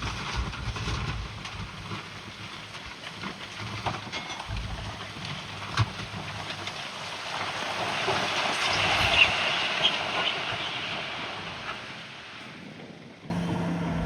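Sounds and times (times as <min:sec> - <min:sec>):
bulldozer working on rock: 0:00.0 - 0:14.0.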